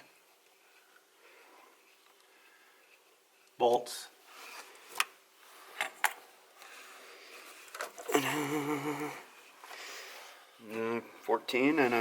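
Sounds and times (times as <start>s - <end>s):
man humming: 8.1s - 9.3s.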